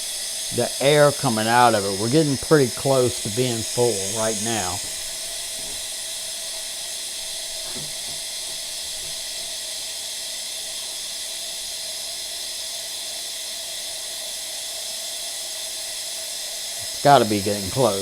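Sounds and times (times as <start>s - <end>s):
air hissing out of tank: 0.0s - 18.0s.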